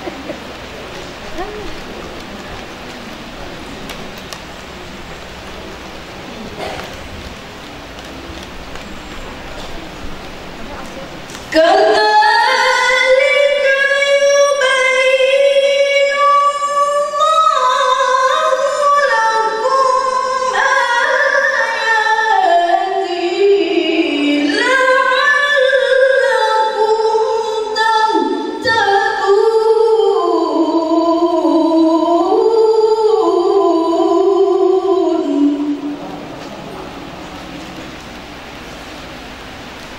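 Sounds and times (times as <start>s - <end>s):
woman chanting melodically: 1.2s - 2.0s, 10.6s - 36.3s.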